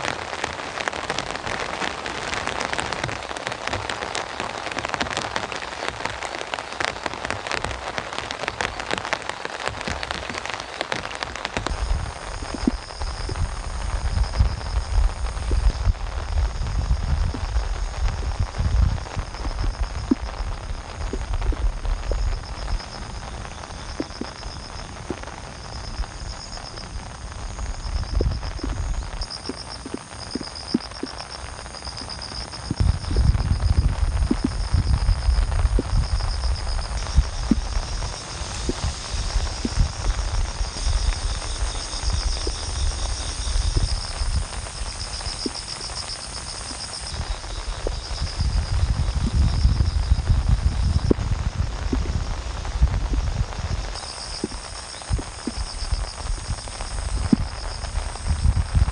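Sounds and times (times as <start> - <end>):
rumble of rain and wind: 0.0 - 58.9
insects trilling: 0.1 - 58.9
raindrop taps: 0.4 - 14.6, 15.4 - 15.9, 17.2 - 23.0, 23.9 - 25.4, 28.1 - 31.3, 31.9 - 40.0, 42.2 - 46.9, 51.9 - 52.2, 54.0 - 55.7.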